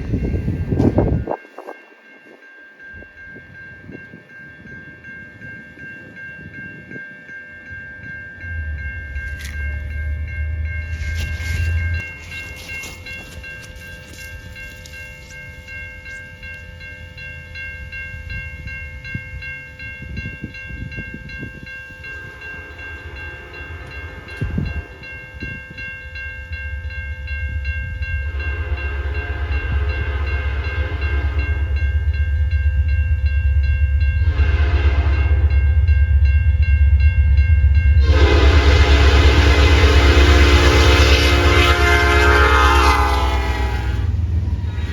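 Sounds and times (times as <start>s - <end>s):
locomotive engine rumble: 8.4s - 16.8s, 20.7s - 44.9s
locomotive horn blasts: 22.2s - 24.8s, 28.2s - 31.8s, 34.2s - 35.6s, 38.0s - 44.2s.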